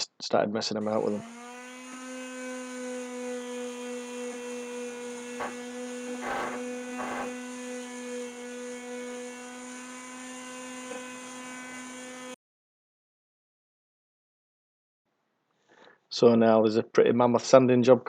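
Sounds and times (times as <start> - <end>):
electrical hum with buzz: 4.2 - 7.4
rustling scrapes: 5.4 - 5.6, 6.2 - 7.4.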